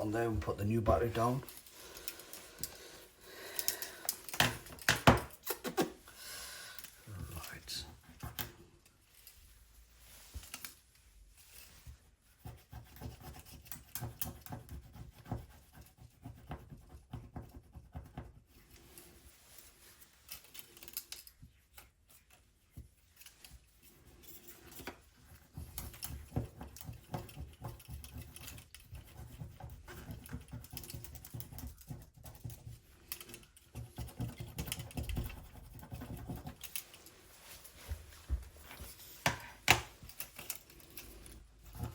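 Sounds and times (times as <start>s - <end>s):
adhesive scratching and clicking: 20.1s - 37.1s, 39.2s - 41.9s.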